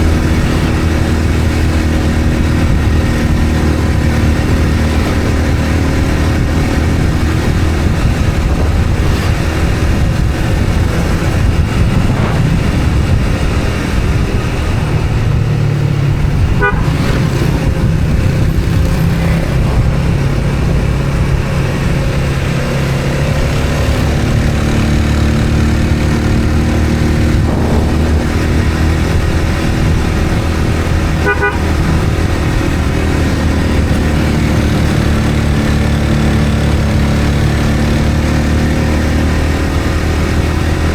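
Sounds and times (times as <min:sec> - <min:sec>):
engine hum: 0:00.0 - 0:40.9
road noise: 0:00.0 - 0:40.9
car horn toots: 0:16.4 - 0:17.5, 0:30.7 - 0:32.8.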